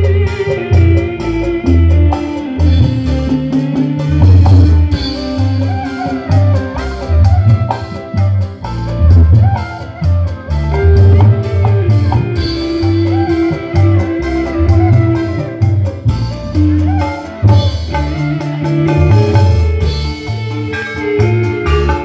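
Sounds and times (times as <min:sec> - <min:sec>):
heavy pulsing bass beat: 0:00.0 - 0:09.5
drums: 0:00.0 - 0:22.0
loud music over pa system: 0:00.0 - 0:22.0.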